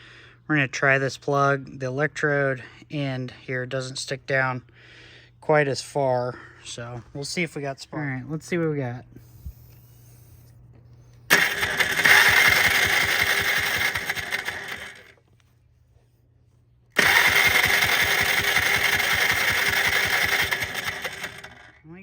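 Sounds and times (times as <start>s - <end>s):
starter cranking engine: 11.3s - 15.2s, 17.0s - 21.8s.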